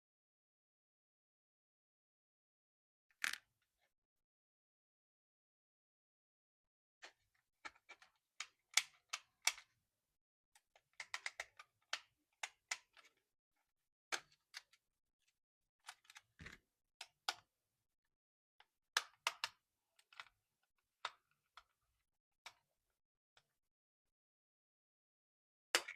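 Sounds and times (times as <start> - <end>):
plastic toy clicks and taps: 10.8 - 13.1, 18.6 - 20.4.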